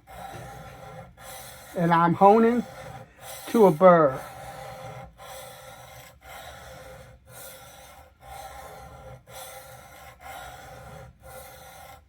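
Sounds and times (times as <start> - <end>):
blade honed on sharpening stone: 0.0 - 12.0.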